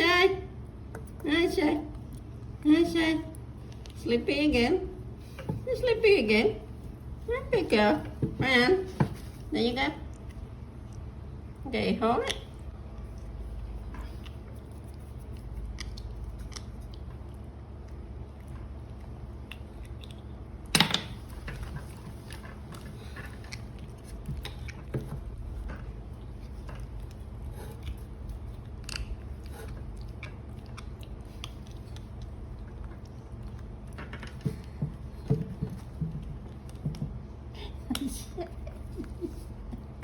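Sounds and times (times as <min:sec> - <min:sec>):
steady low hum: 0:00.0 - 0:40.0
baby monkey chewing and sucking: 0:26.0 - 0:34.0.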